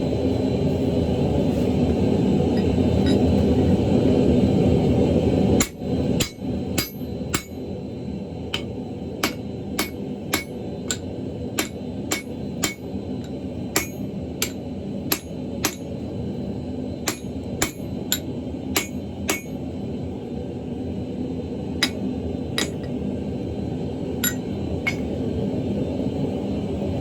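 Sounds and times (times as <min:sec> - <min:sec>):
hammer ringing on steel: 0:05.6 - 0:07.6, 0:08.6 - 0:12.9, 0:13.8 - 0:15.9, 0:17.1 - 0:19.6, 0:24.2 - 0:25.1.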